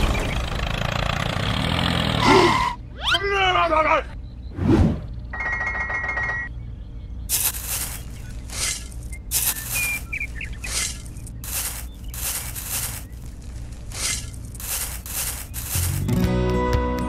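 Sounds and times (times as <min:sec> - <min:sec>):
metal shovel scraping sand: 0:07.3 - 0:16.1.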